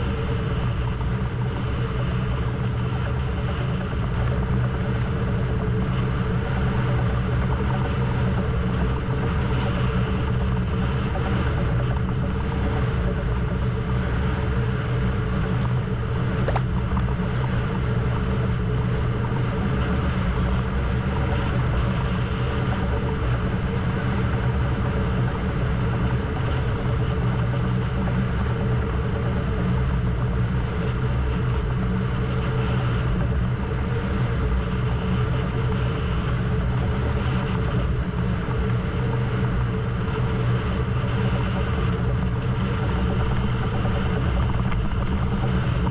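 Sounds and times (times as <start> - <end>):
boat engine running: 0.0 - 45.9
sharp click: 16.5 - 16.7.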